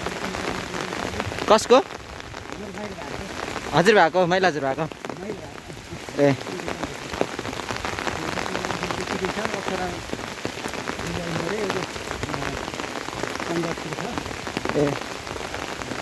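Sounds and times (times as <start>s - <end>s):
steady rain patter: 0.0s - 16.0s
faint voices talking: 4.4s - 10.2s.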